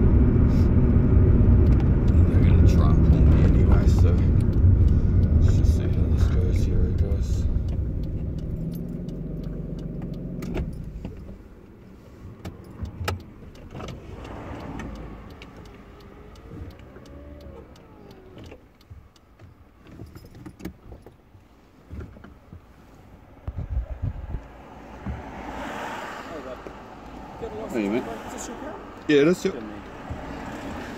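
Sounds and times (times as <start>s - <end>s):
car engine idling: 0.0s - 30.9s
clicks and rattles in car: 1.5s - 25.3s.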